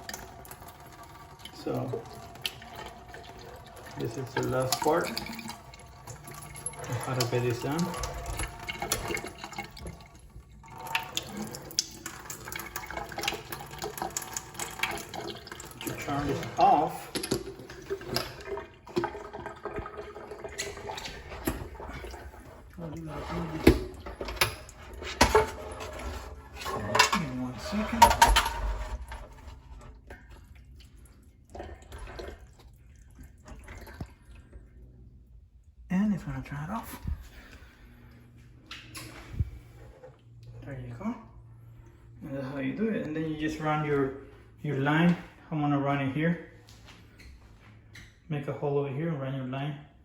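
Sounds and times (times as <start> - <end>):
water running from hose: 0.0 - 9.9
water spattering and dripping: 0.0 - 34.6.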